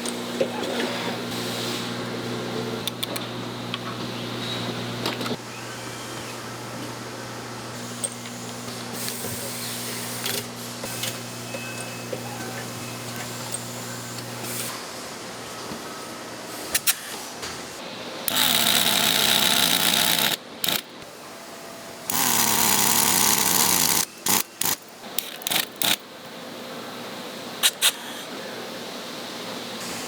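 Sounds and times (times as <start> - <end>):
power tool running: 18.3 - 20.9, 22.1 - 26.0.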